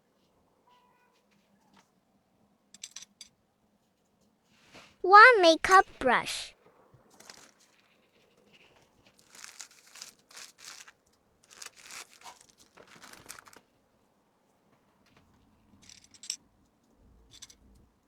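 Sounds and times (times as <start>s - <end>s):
plastic packaging crinkling: 7.1s - 7.8s, 9.1s - 13.6s.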